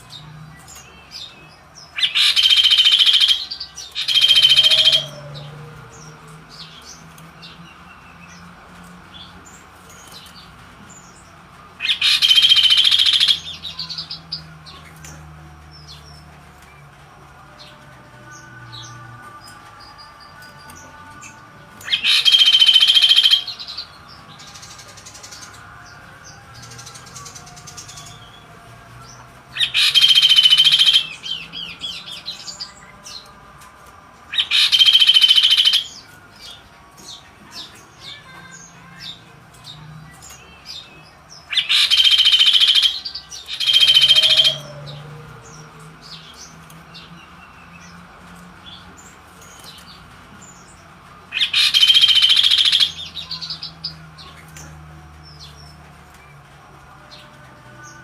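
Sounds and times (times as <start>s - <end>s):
bird harsh calls: 34.4s - 36.0s, 41.5s - 45.0s, 51.4s - 53.7s.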